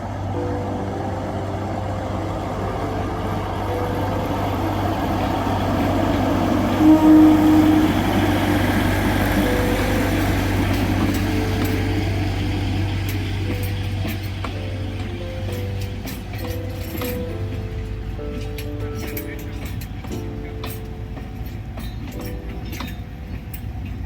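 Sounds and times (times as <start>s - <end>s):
train running past humming: 0.0s - 24.0s
train horn: 5.4s - 13.8s.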